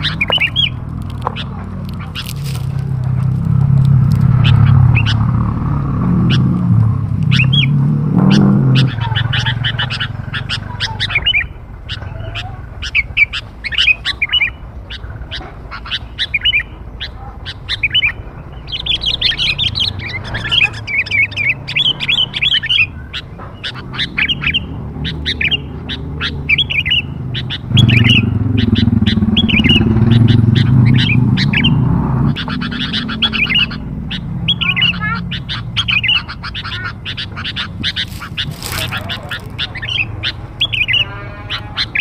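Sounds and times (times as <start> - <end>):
bulbul chirping calls: 0.0 - 3.0, 4.2 - 5.4, 7.2 - 42.0
low rumble: 0.0 - 13.0.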